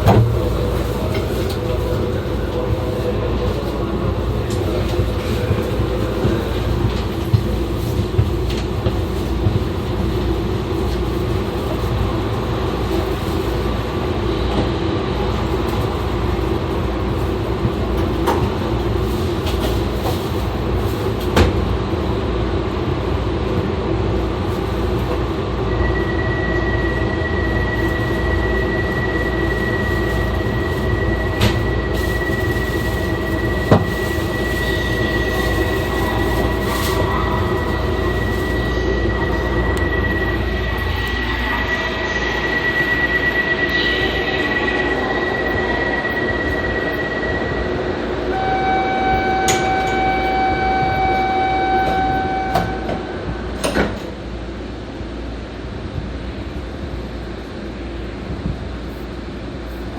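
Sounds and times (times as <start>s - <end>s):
train rolling rumble: 0.0s - 59.9s
thin high-pitched squeal: 30.6s - 47.3s.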